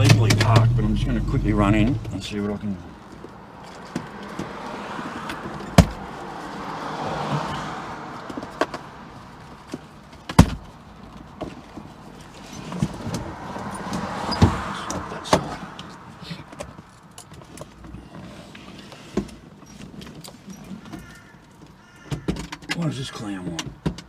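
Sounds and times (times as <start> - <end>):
sharp clunks: 0.0 - 1.0
cars passing: 0.0 - 24.0.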